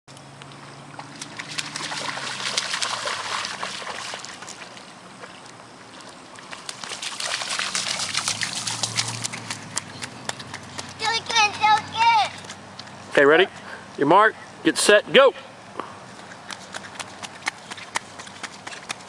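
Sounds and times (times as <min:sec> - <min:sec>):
feet splashing through puddle: 0:00.5 - 0:13.0, 0:16.3 - 0:19.0.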